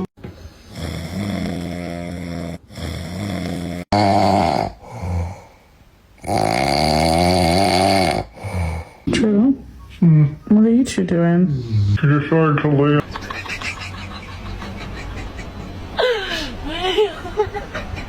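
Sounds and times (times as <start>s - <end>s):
cat snoring: 0.5s - 5.6s, 6.2s - 9.0s.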